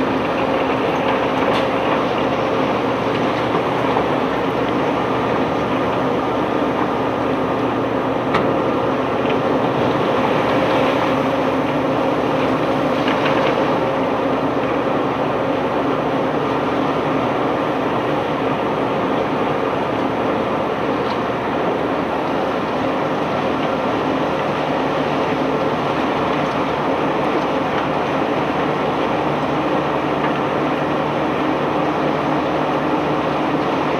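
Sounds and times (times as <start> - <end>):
heavy machinery drone: 0.0 - 33.9.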